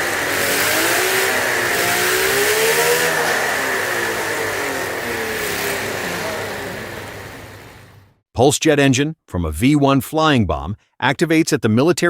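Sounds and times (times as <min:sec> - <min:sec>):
model engine revving: 0:00.0 - 0:08.2.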